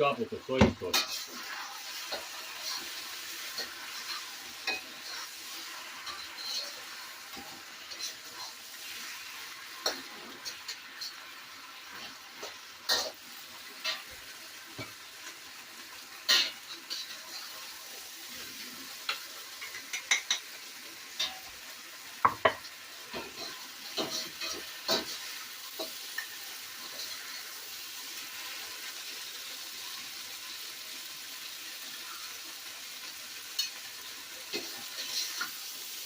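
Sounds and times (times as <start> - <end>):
food sizzling in a pan: 0.0 - 36.0
metal spatula scraping a pan: 0.8 - 14.2, 16.3 - 21.5, 23.1 - 28.6, 33.6 - 35.7.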